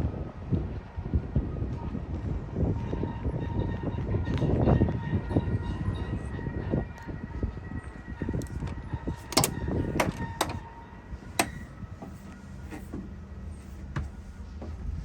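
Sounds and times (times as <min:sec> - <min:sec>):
truck engine rumbling: 0:08.2 - 0:15.0
sharp clicks or knocks: 0:09.3 - 0:10.6, 0:11.4 - 0:11.6.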